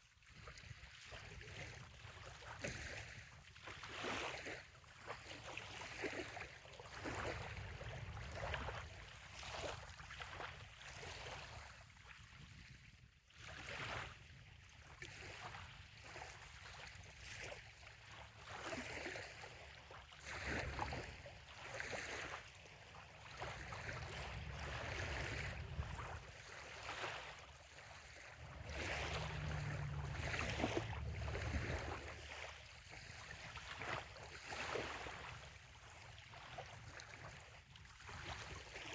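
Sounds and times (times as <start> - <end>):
small waves lapping on shore: 0.0 - 38.9
low rumble: 24.0 - 26.4, 28.3 - 33.3.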